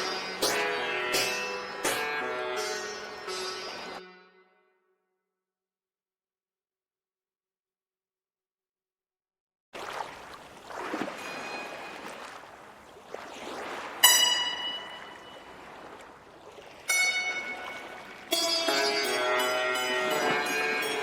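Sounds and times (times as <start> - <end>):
soft rushing wash: 9.8 - 18.8
sharp ringing notes: 14.0 - 15.6.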